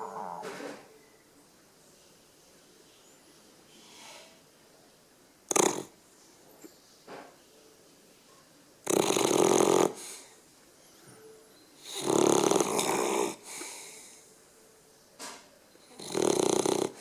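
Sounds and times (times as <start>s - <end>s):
dog snoring: 5.5s - 5.9s, 8.8s - 10.2s, 11.8s - 13.9s, 15.9s - 17.0s
soft breath: 9.9s - 12.0s, 13.3s - 14.4s.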